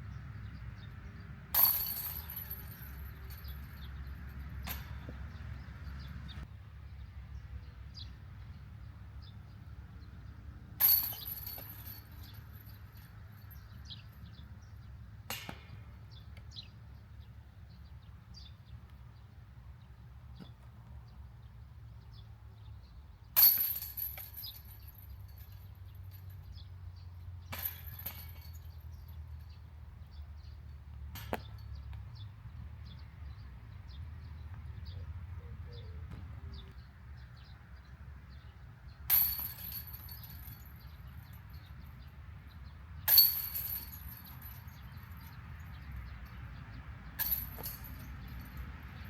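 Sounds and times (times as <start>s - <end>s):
discs rattling basket chains: 1.6s - 3.9s, 10.8s - 13.0s, 23.4s - 25.6s, 39.1s - 41.2s, 43.1s - 45.3s.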